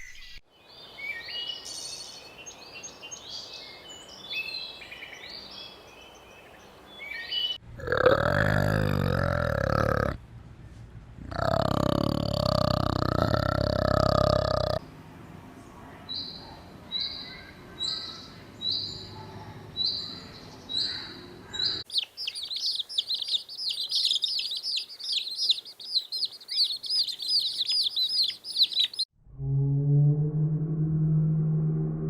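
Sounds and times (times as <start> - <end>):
chorus of rapid bird chirps: 16.0 - 29.1
bird giving high chirps: 21.6 - 29.1.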